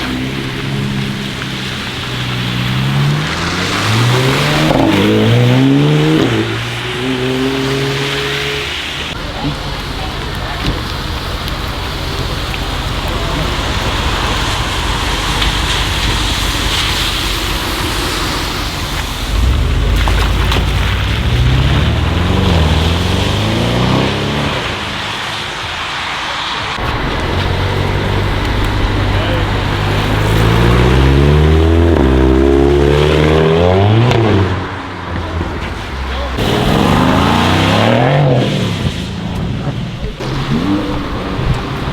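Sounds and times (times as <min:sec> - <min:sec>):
car engine running: 0:00.0 - 0:41.9
heavy rain hissing: 0:00.0 - 0:41.9.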